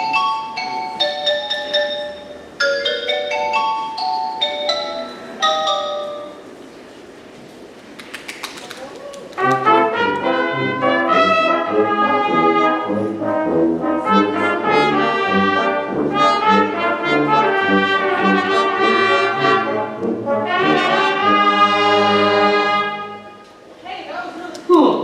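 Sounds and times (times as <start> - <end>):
wind band playing: 9.4 - 23.5.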